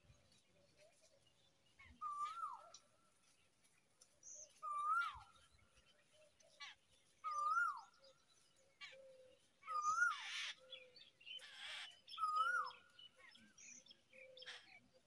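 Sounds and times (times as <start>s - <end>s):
whistled bird call: 2.0s - 2.8s, 4.4s - 5.4s, 7.2s - 8.0s, 9.0s - 12.9s.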